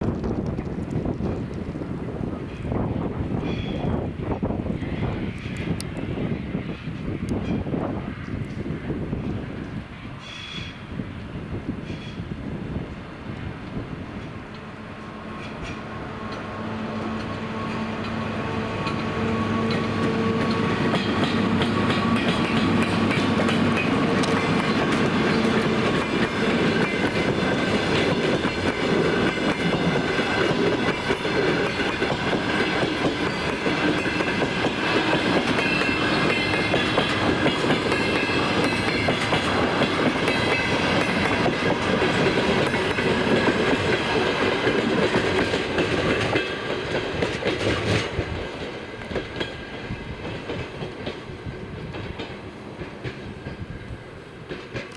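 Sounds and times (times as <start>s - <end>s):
train wheels clicking over rail joints: 13.3s - 54.9s.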